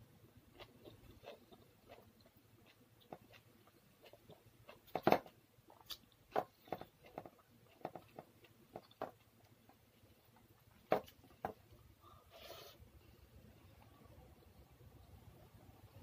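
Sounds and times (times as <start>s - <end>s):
person chewing food: 0.4s - 12.2s.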